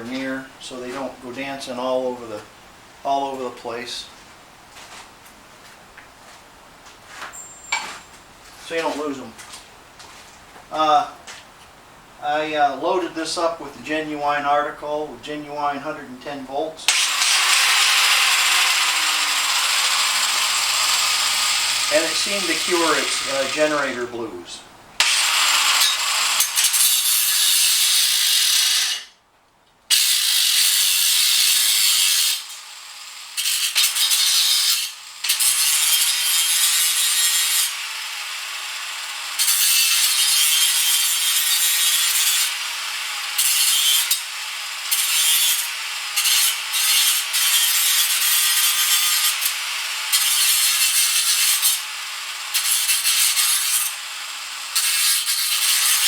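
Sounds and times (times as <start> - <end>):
harsh rasping of metal grinding: 16.9 - 24.1, 44.8 - 56.0.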